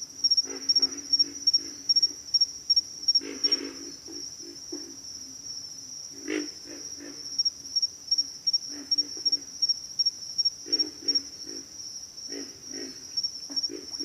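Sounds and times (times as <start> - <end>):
high-pitched insect trill: 0.1 - 14.0
frogs grunting: 0.3 - 2.4, 3.1 - 5.0, 6.1 - 7.5, 8.5 - 9.7, 10.6 - 14.0.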